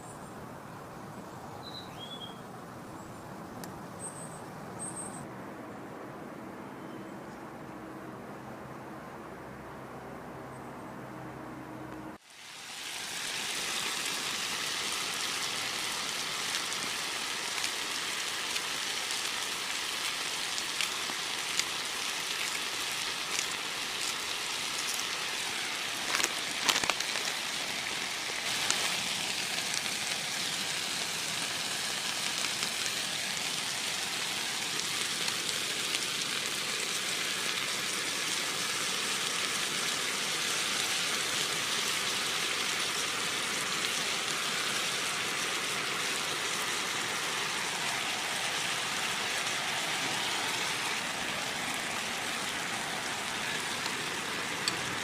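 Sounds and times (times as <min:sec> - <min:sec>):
rain falling: 0:12.2 - 0:55.0
louder rain taps: 0:16.3 - 0:30.2.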